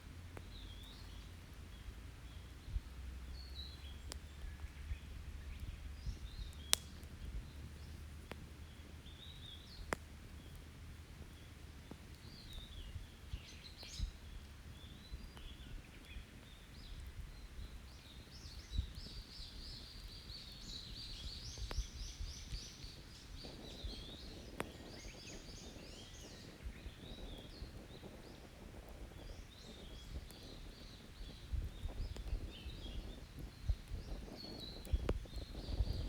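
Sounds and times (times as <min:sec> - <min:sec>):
campfire crackling: 0:00.0 - 0:36.0
sharp fire pops: 0:05.5 - 0:14.2, 0:18.4 - 0:36.0
wild birds singing and calling: 0:11.2 - 0:36.0.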